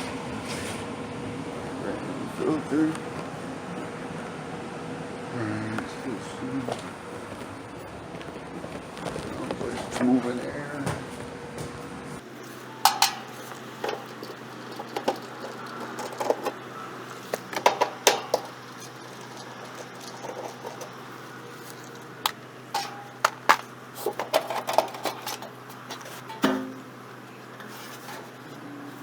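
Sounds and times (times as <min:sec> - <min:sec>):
air handler blower hum: 0:12.1 - 0:29.0
metal tools clinking: 0:12.3 - 0:26.9.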